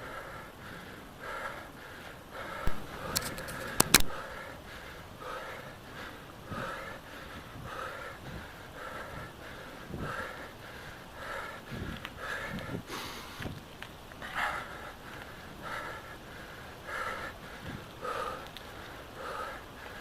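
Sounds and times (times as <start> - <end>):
person panting hard: 0.0 - 13.6, 14.2 - 20.0
sharp clicks: 2.7 - 4.2.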